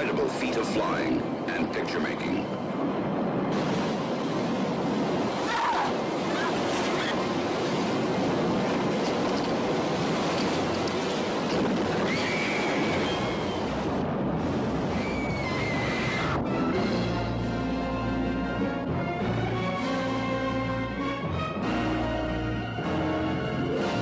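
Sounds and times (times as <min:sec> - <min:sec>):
high whistling glides: 0:11.9 - 0:13.9, 0:14.9 - 0:18.1.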